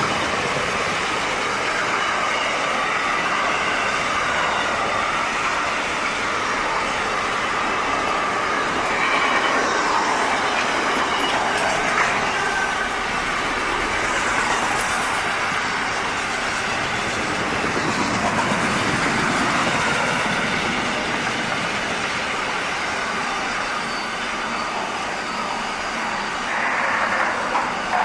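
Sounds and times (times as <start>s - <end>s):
train wagons rumbling on rails: 0.0s - 28.0s
faint wheel squeals: 22.8s - 28.0s.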